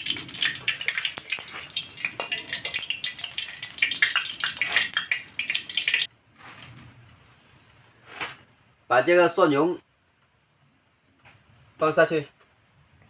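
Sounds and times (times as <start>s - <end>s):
oil sizzling in a pan: 0.0s - 6.1s.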